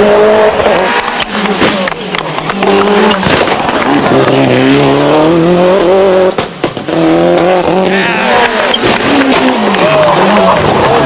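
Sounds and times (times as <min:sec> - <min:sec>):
car engine revving: 0:00.0 - 0:11.0
engine pops and bangs: 0:01.0 - 0:04.3, 0:08.7 - 0:10.0.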